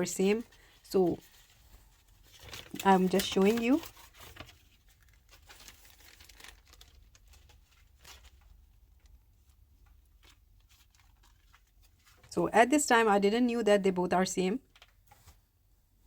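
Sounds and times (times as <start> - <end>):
packets rustling and clicking: 0.4 - 9.2.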